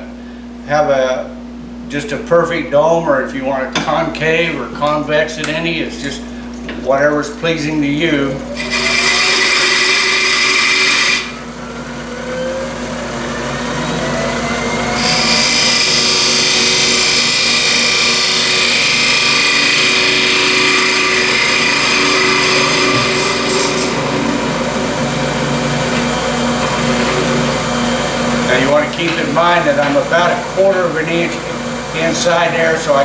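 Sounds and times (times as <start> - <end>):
wood lathe running: 7.8 - 33.0
turning tool cutting wood: 8.4 - 33.0.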